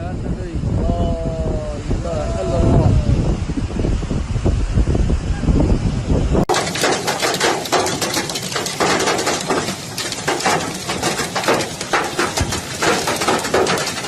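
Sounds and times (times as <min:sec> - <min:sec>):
hailstones pelting hard surface: 0:06.5 - 0:14.0.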